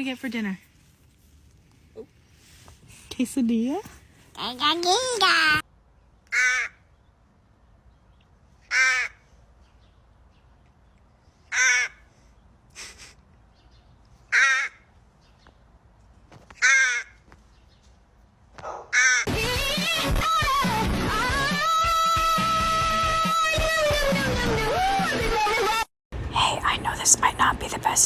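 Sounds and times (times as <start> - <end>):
bird cawing: 6.3 - 7.0, 8.6 - 9.4, 11.5 - 12.2, 14.2 - 15.0, 16.6 - 17.3, 18.6 - 19.3.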